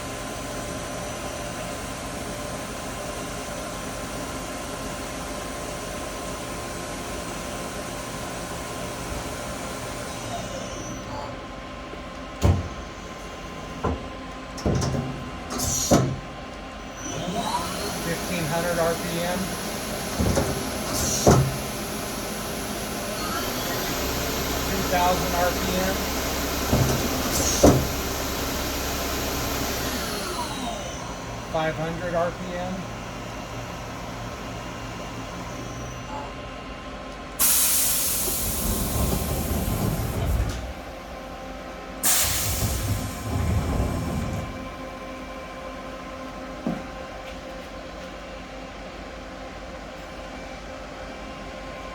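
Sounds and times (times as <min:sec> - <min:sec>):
lathe humming: 0:16.6 - 0:35.8
sharp knocks and clunks: 0:26.7 - 0:28.0.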